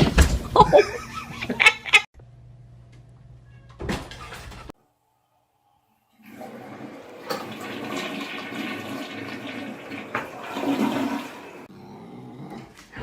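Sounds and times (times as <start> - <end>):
water rushing: 6.2 - 11.7.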